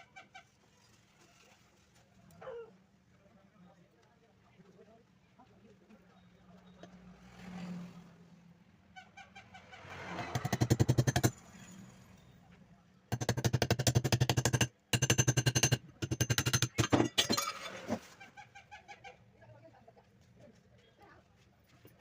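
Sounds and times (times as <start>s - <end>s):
fast mechanical rattle: 10.3s - 11.4s, 13.1s - 17.2s.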